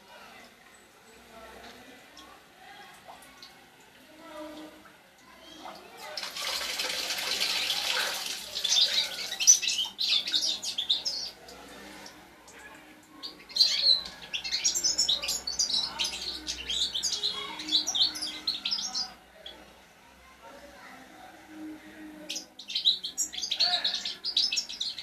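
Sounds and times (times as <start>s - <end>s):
goldfinch twittering song: 6.5s - 11.4s.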